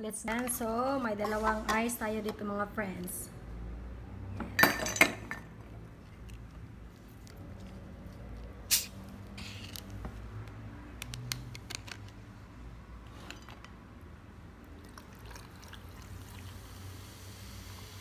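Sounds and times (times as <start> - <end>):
ice clinking against glass: 4.6 - 5.5
drink pouring into glass: 14.7 - 17.0.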